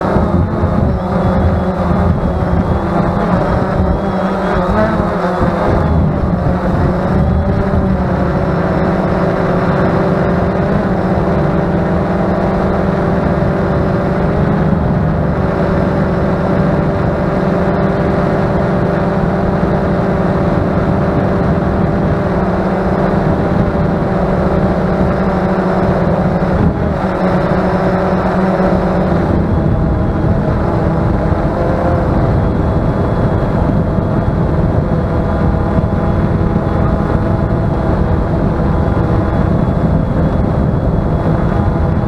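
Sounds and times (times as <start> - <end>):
drone motors humming: 0.0 - 42.0
wind buffeting microphone: 0.0 - 42.0.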